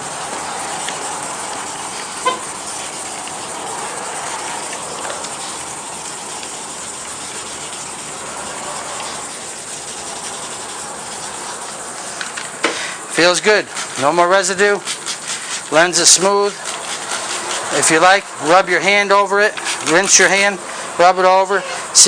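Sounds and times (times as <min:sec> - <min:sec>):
sandpaper rubbing plastic: 0:00.1 - 0:12.6, 0:13.2 - 0:21.9.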